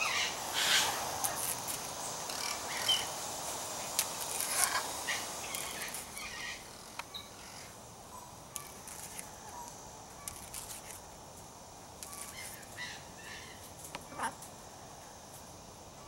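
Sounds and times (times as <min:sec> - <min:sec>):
birds calling and chirping: 0:00.0 - 0:08.8.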